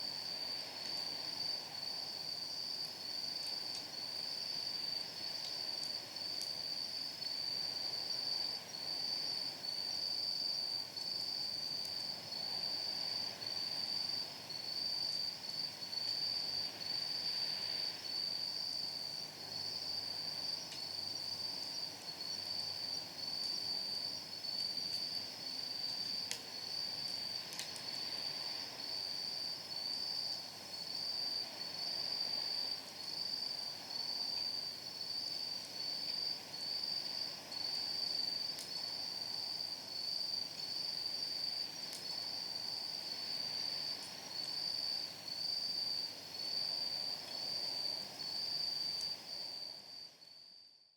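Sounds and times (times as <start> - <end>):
crickets trilling: 0.0 - 50.7
firewood crackling: 25.9 - 28.0.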